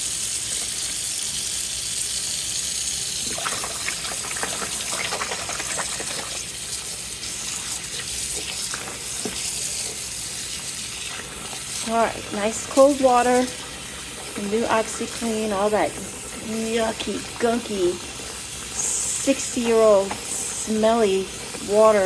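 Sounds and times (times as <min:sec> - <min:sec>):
tap water running into sink: 0:00.0 - 0:22.0
water splashing: 0:03.2 - 0:09.6.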